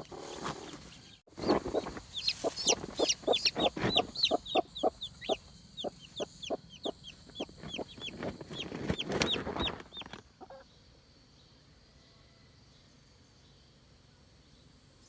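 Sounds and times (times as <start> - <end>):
chickens clucking: 0.0 - 10.7.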